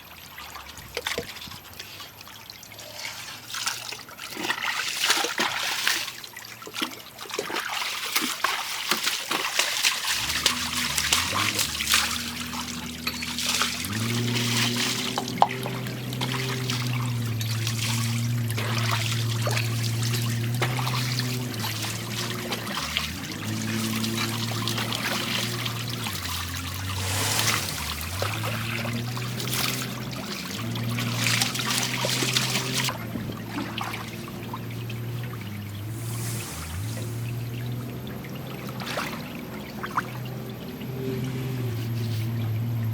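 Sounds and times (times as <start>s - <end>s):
water splashing and trickling: 0.0s - 42.9s
engine running: 10.1s - 42.9s.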